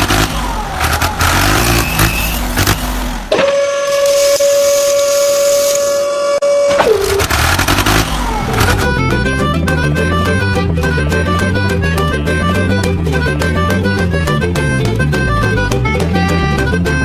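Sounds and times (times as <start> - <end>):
vehicle engine noise: 0.0 - 6.0, 6.6 - 17.0
long horn blast: 3.4 - 17.0.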